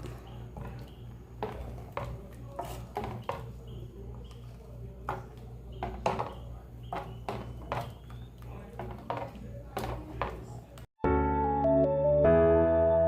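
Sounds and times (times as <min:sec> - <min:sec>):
spoon scraping a cooking pot: 0:00.7 - 0:08.1.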